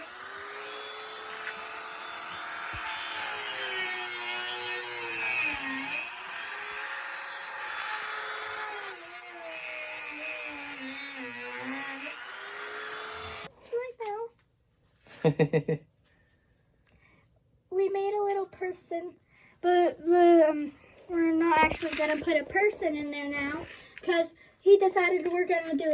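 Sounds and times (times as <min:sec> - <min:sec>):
rotary tool whining: 0:00.0 - 0:09.5, 0:10.8 - 0:13.5
bit grinding into wood: 0:00.0 - 0:13.5.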